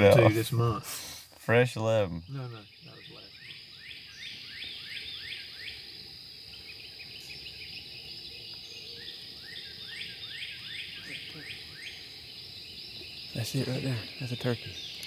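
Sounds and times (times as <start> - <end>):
high insect drone: 0.0 - 15.0
songbird whistling: 2.6 - 5.9, 6.5 - 13.2.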